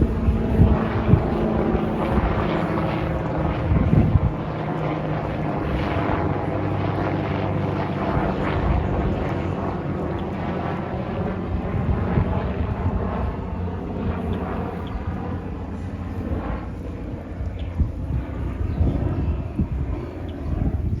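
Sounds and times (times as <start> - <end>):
aircraft engines running: 0.0 - 21.0
wind buffeting microphone: 0.0 - 21.0.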